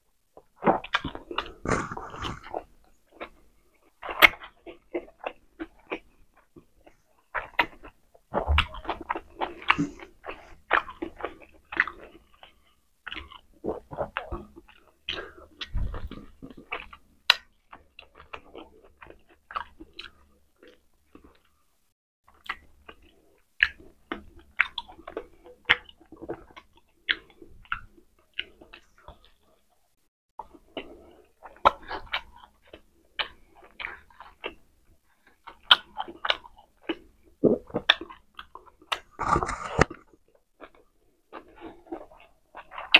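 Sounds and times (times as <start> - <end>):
person chewing and biting food: 0.4 - 21.6, 22.3 - 29.6, 30.4 - 42.9.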